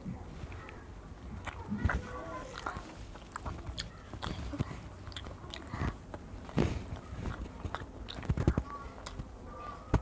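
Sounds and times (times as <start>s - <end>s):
boy chewing food: 0.0s - 10.0s
wet mouth clicks: 1.4s - 9.3s.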